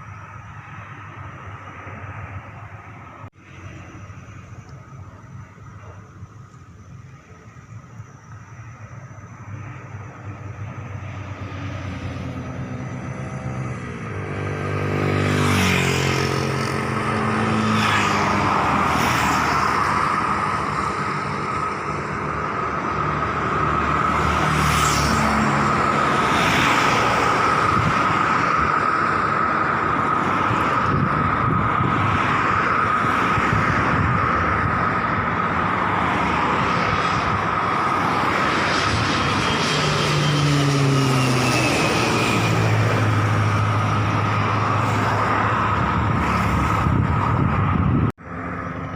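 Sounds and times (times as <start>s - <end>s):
low engine rumble: 0.0s - 14.4s
turbine engine high whine: 0.0s - 48.9s.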